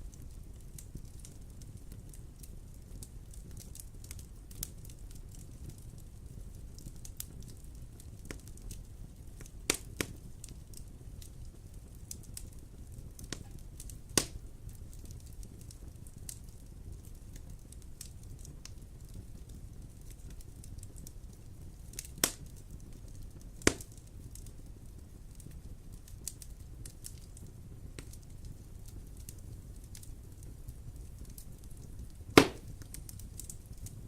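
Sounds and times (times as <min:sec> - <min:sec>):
wood fire crackling: 0:00.0 - 0:34.0
loud sharp pops: 0:22.2 - 0:22.4, 0:23.6 - 0:23.9, 0:32.4 - 0:32.8.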